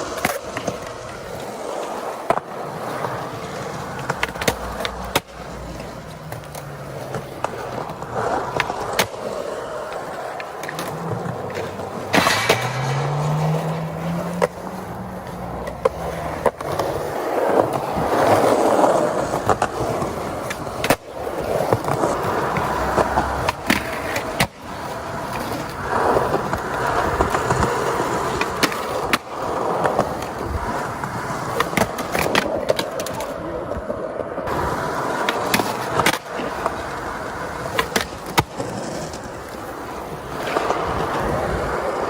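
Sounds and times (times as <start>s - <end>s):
skateboard clacks: 0.0s - 42.0s
skateboard wheels rolling on pavement: 0.0s - 42.0s.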